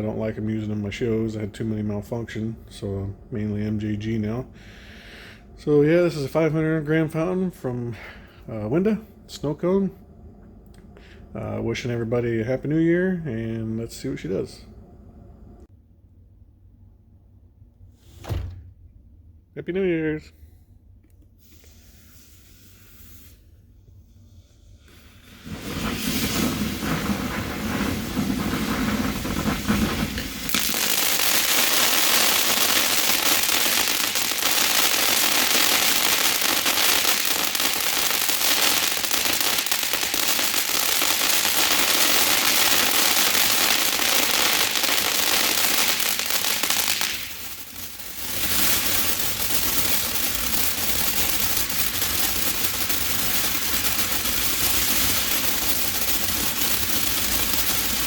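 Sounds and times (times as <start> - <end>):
firework fountain hissing and crackling: 0.0 - 8.1, 21.4 - 58.0.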